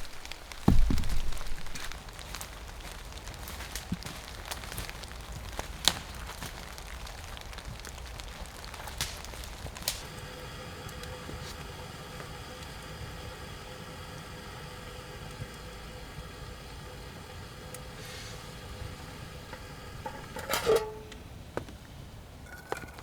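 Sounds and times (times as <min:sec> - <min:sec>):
wood fire crackling: 0:00.0 - 0:23.0
low hum with held tone: 0:09.8 - 0:23.0.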